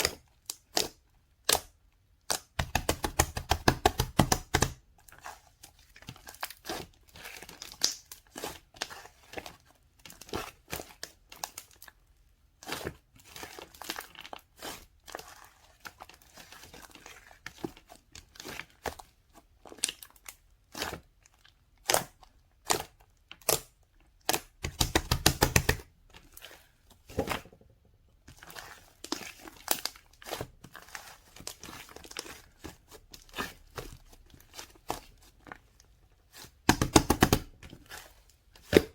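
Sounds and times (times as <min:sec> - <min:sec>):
crinkling and tearing material: 0:28.3 - 0:38.9.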